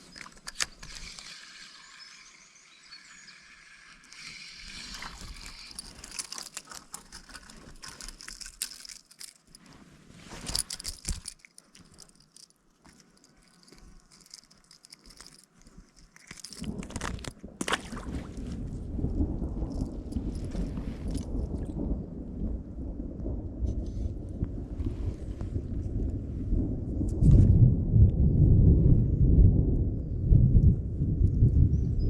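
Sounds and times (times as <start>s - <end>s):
footsteps snapping twigs: 4.1s - 9.7s, 10.3s - 18.3s.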